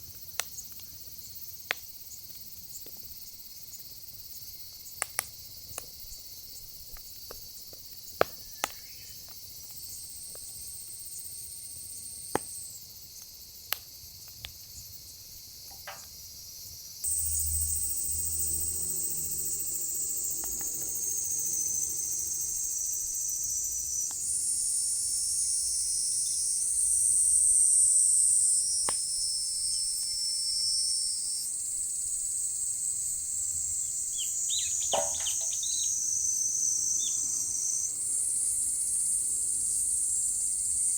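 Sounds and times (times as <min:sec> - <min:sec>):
insects chorus: 0:00.0 - 0:40.9
firewood crackling and popping: 0:05.0 - 0:06.0, 0:34.7 - 0:35.9.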